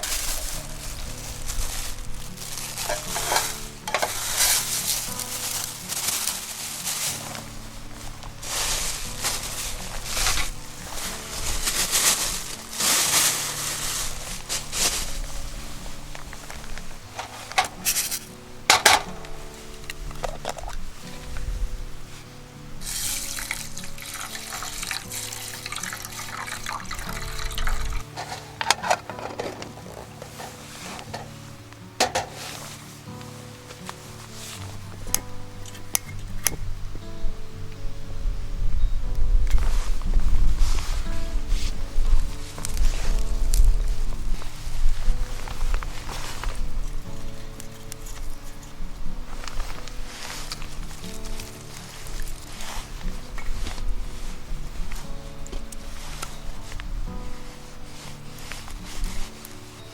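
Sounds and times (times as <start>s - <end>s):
water pouring and splashing: 0.0s - 21.3s, 22.8s - 31.4s
food sizzling over campfire: 0.0s - 59.9s
soft background music: 0.0s - 59.9s.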